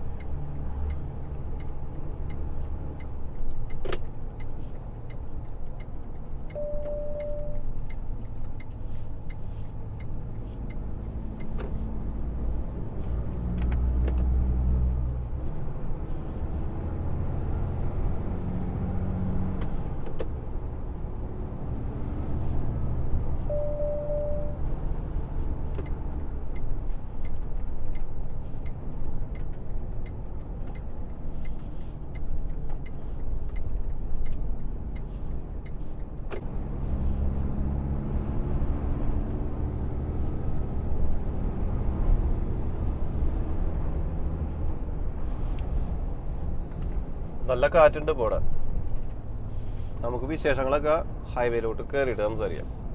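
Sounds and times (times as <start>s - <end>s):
truck engine: 0.0s - 52.9s
short beep: 6.5s - 7.7s, 23.5s - 24.6s.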